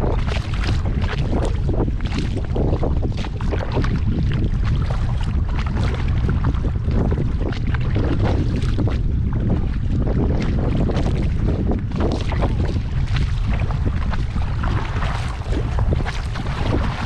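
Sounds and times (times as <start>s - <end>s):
water splashing and lapping: 0.0s - 17.0s
wind buffeting microphone: 0.0s - 17.0s.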